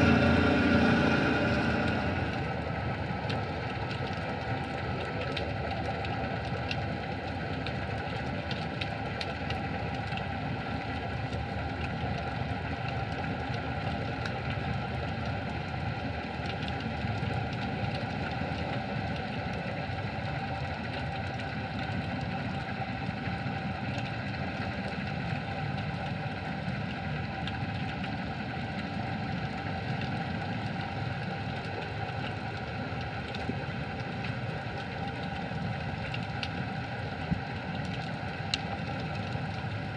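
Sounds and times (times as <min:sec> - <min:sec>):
steady hum: 0:00.0 - 0:04.4
underwater low rumble: 0:00.0 - 0:39.9.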